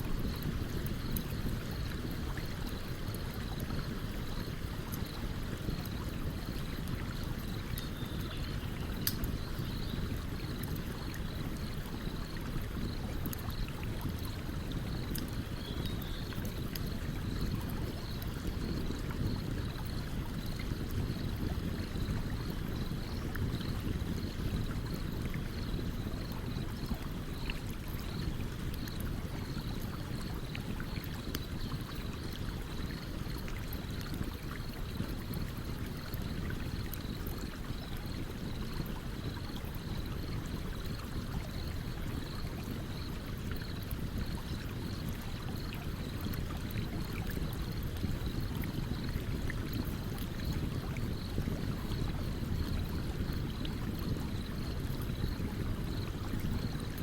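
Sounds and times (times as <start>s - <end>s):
campfire crackling: 8.6s - 15.5s.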